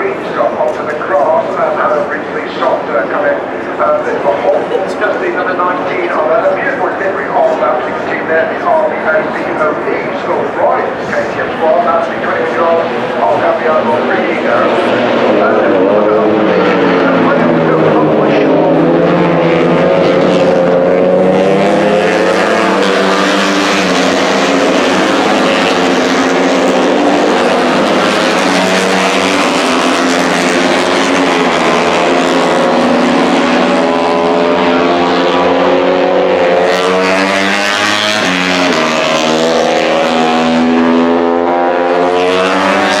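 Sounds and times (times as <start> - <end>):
racing motorcycles at high revs: 11.6 - 43.0.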